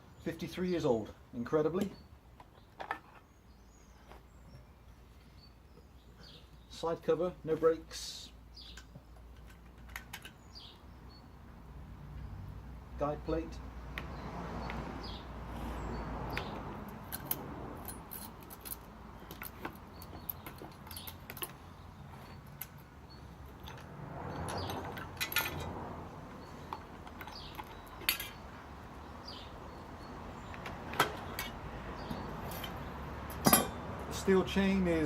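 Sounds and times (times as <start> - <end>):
metal parts clicking and clinking: 8.8 - 10.4, 16.9 - 25.8, 26.6 - 28.5, 30.5 - 31.6.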